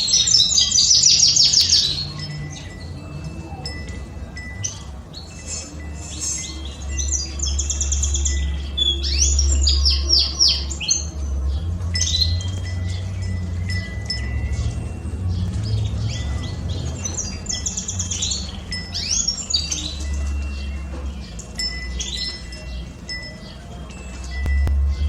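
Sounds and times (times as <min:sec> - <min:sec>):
canaries singing: 0:00.0 - 0:25.0
wind chime ringing: 0:00.0 - 0:25.0
low wind rumble: 0:22.4 - 0:25.0.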